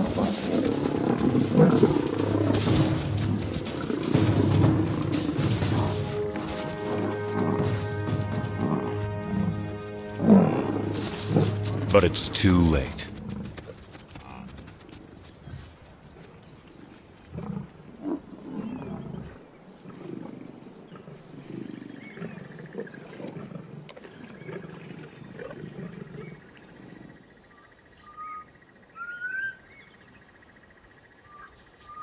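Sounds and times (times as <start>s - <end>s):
lions growling: 0.0s - 9.6s.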